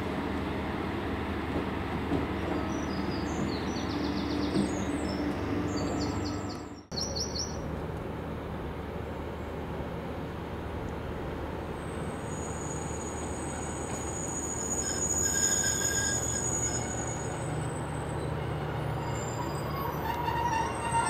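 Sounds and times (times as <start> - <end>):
train rumbling: 0.0 - 21.0
wheel squeal on rails: 11.8 - 21.0.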